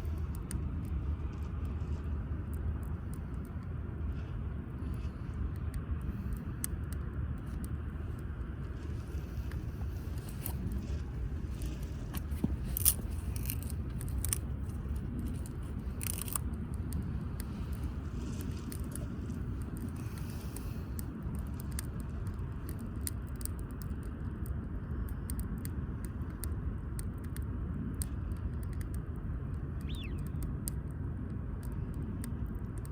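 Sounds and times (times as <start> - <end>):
wood fire crackling: 4.8 - 32.9.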